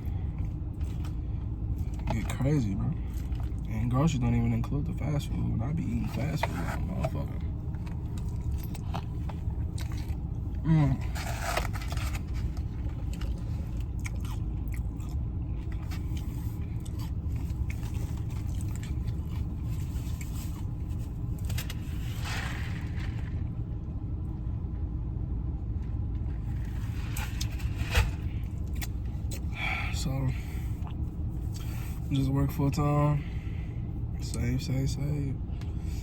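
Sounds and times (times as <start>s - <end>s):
steady low hum: 0.0s - 36.0s
person chewing food: 3.0s - 3.7s, 7.3s - 23.4s, 26.3s - 29.6s.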